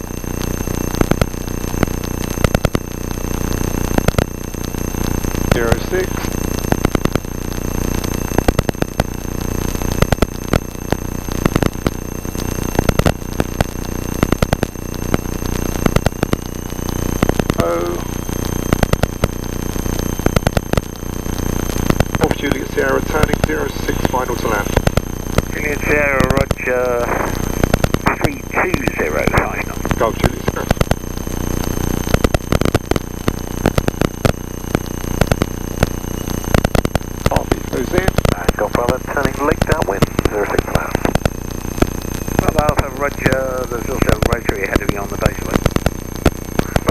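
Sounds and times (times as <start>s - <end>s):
clicking and buzzing interference: 0.0s - 46.9s
steady electrical whine: 0.0s - 46.9s
aircraft engine drone: 22.2s - 30.8s, 37.3s - 41.2s.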